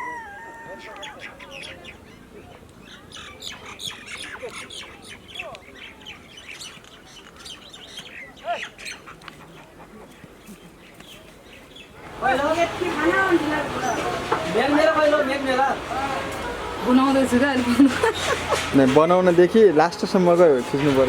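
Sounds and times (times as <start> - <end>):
birds chirping and squawking: 0.0 - 16.8.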